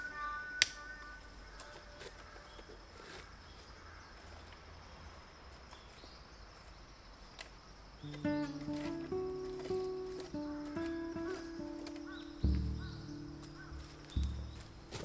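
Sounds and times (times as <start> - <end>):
music with sustained tones: 8.1 - 15.0
low rumble: 12.4 - 15.0.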